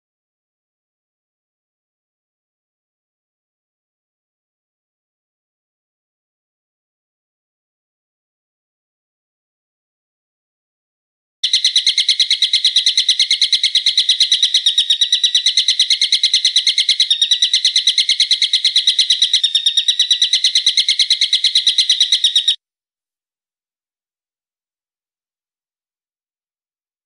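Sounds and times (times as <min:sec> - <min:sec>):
bird call in fast notes: 0:11.4 - 0:22.6.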